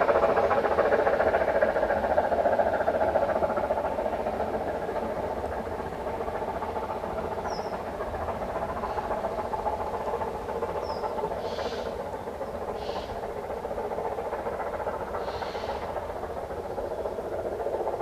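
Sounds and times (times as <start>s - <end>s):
steam train running: 0.0s - 18.0s.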